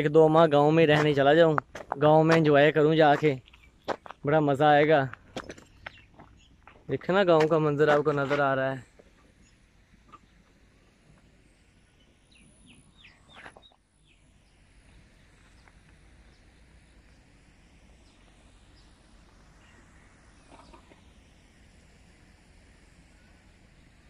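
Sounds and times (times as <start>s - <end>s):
distant bird chirps: 0.0s - 24.0s.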